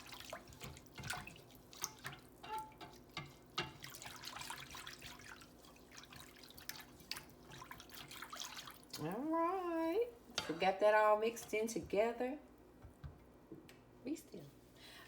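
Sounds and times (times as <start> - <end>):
liquid sloshing in a pan: 0.0 - 13.4
whisk clinking against pan: 0.2 - 8.1.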